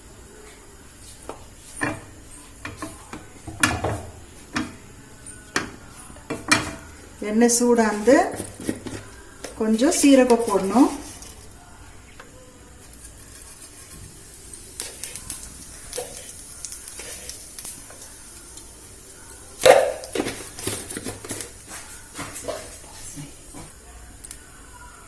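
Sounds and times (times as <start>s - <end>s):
seeds sizzling in hot oil: 12.8s - 24.5s.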